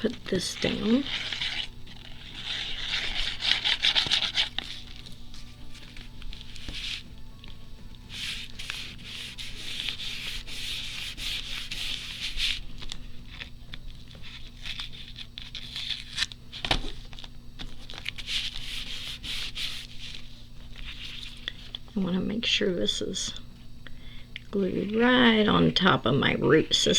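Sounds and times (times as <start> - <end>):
paper rubbing: 0.0 - 17.0, 17.6 - 21.8.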